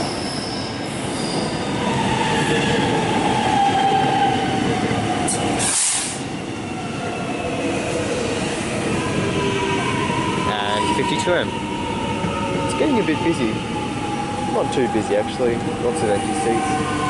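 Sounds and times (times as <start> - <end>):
electric train rumbling: 0.0 - 17.0
air hiss: 5.6 - 6.3.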